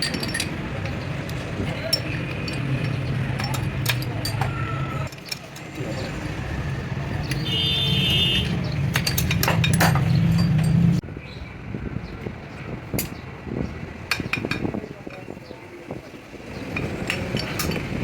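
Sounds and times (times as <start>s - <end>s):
metallic clinks and knocks: 0.0s - 5.7s, 8.6s - 11.0s.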